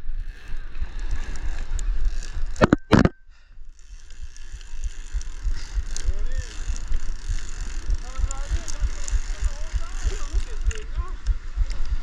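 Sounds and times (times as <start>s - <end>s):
wind buffeting microphone: 3.9s - 12.0s.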